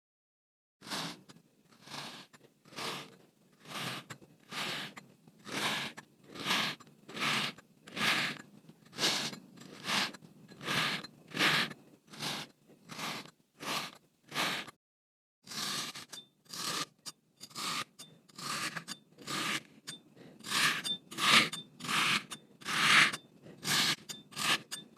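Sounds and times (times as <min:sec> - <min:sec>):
knife cutting crunchy sand: 0:00.8 - 0:14.7, 0:17.5 - 0:24.7.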